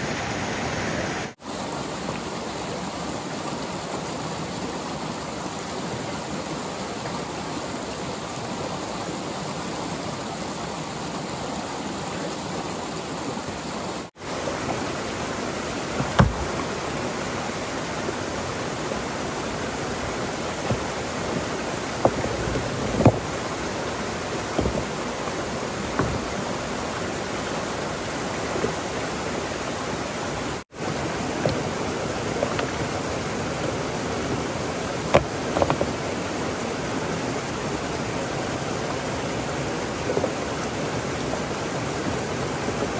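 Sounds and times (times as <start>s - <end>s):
flowing water rushing: 0.0s - 42.9s
short knocks and taps: 16.0s - 16.7s, 20.6s - 23.5s, 24.5s - 26.4s.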